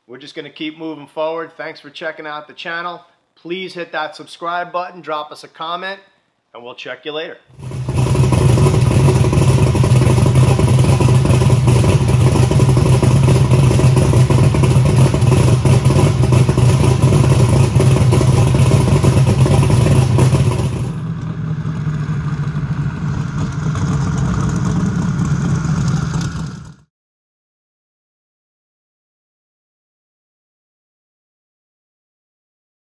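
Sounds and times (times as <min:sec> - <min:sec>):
loud unmuffled engine running: 0:07.6 - 0:26.9.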